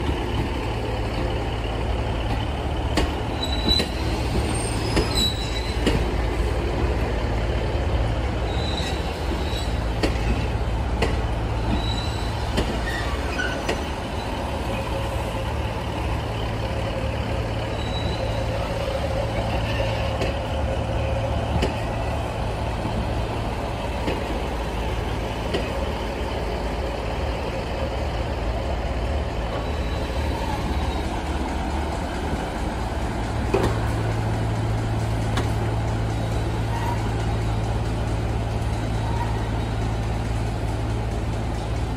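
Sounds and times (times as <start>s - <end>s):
train engine hum: 0.0s - 41.9s.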